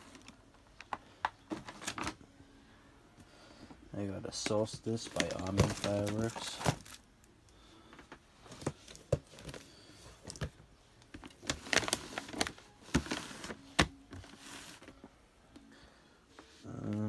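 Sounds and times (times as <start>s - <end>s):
packaging clicks and rustles: 0.0s - 2.2s, 4.3s - 15.1s.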